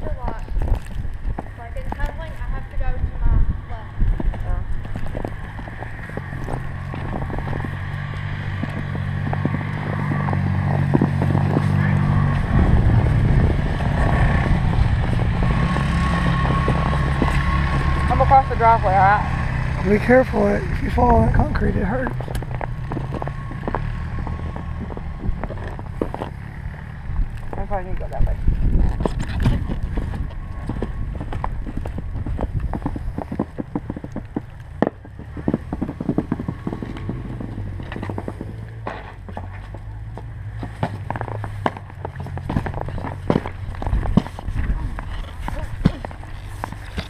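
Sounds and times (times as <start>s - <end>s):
low engine-like rumble: 0.0s - 47.0s
footsteps crunching in snow: 4.1s - 12.5s, 21.5s - 27.7s, 28.4s - 47.0s.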